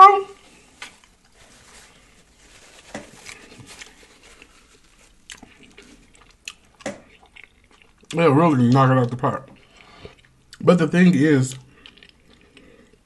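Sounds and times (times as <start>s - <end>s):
chewing and lip smacking: 3.3s - 8.8s, 9.4s - 10.6s, 11.5s - 13.0s.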